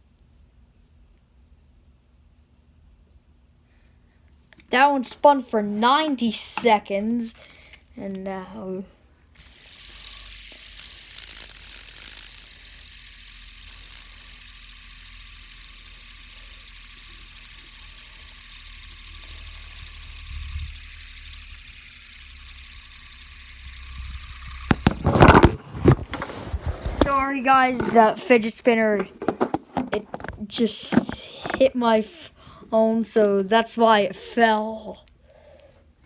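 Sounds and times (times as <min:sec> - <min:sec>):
fidget spinner whirring: 0:09.3 - 0:34.4
spinner clattering against phone: 0:24.6 - 0:31.8.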